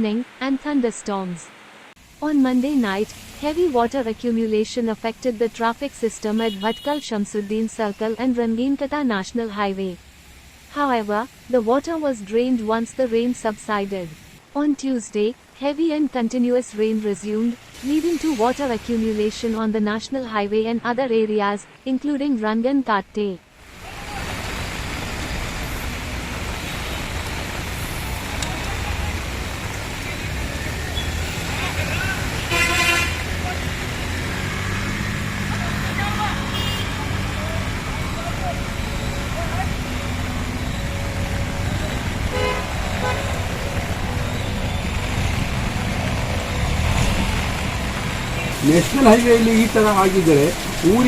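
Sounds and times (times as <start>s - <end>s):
tyres hissing on wet road: 1.6s - 3.8s, 10.0s - 11.7s, 17.6s - 19.6s, 23.6s - 51.0s
vehicle horn toots: 6.4s - 7.0s, 32.4s - 33.3s, 36.2s - 37.2s, 42.3s - 43.4s.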